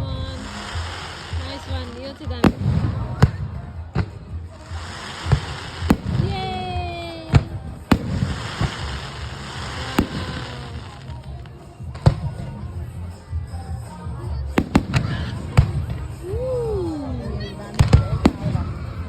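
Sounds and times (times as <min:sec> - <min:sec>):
fireworks bangs: 0:00.3 - 0:11.2, 0:14.6 - 0:16.1, 0:17.8 - 0:19.0.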